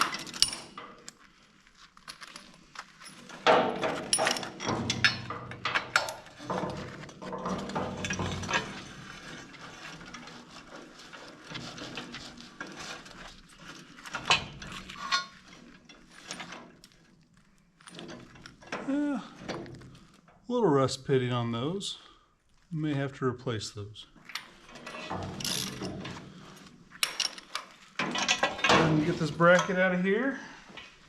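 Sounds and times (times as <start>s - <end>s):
metal tools clinking: 0.0s - 10.2s, 12.8s - 17.0s, 24.2s - 30.0s
scraping and shuffling: 24.0s - 31.0s.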